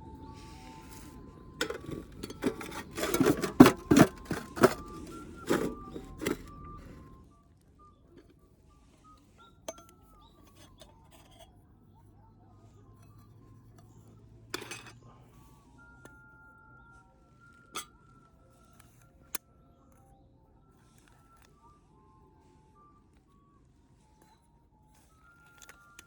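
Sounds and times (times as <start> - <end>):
alto recorder melody: 0.0 - 26.0
tableware clinking: 1.6 - 7.1, 13.8 - 15.0.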